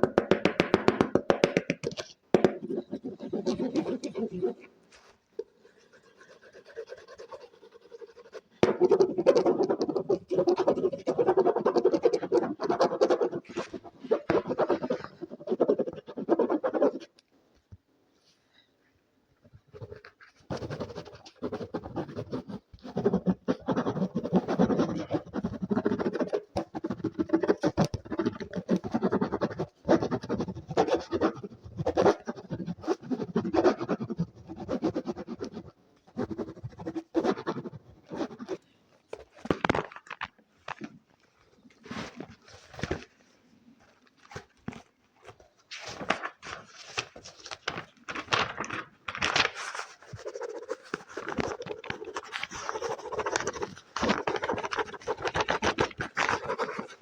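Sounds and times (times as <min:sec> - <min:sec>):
quick scratching strokes: 0:02.5 - 0:17.1, 0:19.8 - 0:38.6, 0:49.5 - 0:57.0.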